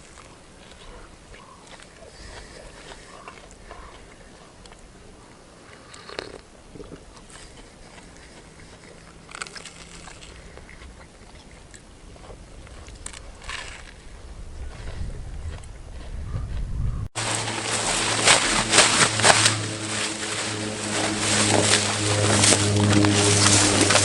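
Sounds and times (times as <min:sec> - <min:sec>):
person chewing sandwich crunches: 0:00.0 - 0:04.9, 0:05.6 - 0:14.1
loud crisp bite: 0:09.2 - 0:10.4.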